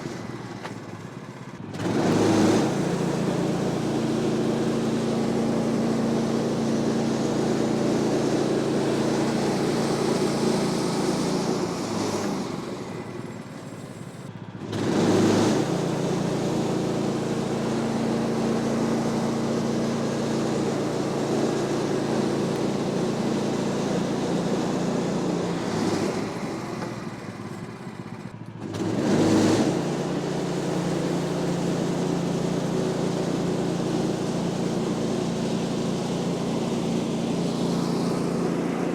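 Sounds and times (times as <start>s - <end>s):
bandsaw mill engine droning: 1.7s - 38.9s.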